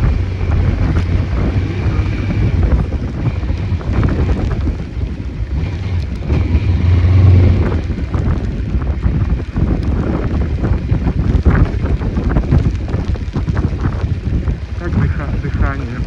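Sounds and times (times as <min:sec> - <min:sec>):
motorcycle engine: 0:00.0 - 0:11.7
road noise: 0:00.0 - 0:16.0
wind buffeting microphone: 0:00.0 - 0:16.0.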